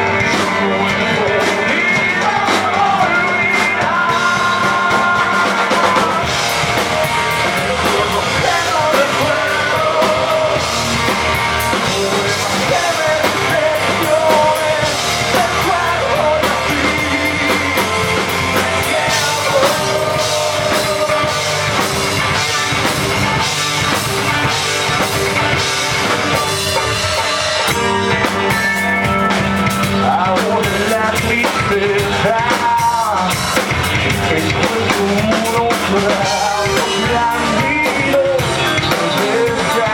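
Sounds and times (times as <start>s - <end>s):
person singing: 0.0s - 39.9s
rock band playing live: 0.0s - 39.9s.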